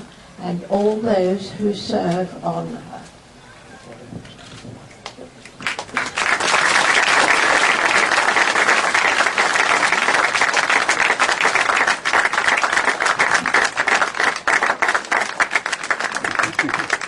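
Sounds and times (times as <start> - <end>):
crowd applauding: 5.0 - 17.0.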